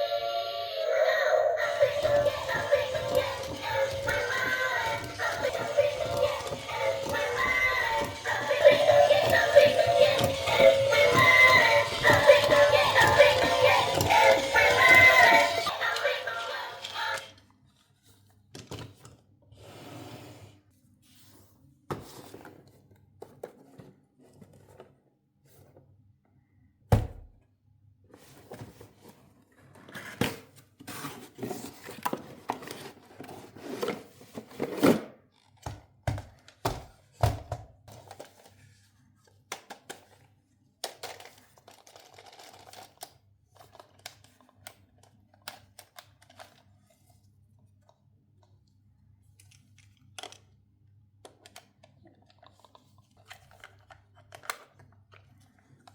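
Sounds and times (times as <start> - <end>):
toy packaging being handled: 0.0 - 19.0, 28.2 - 36.6, 37.8 - 48.5, 51.2 - 55.9.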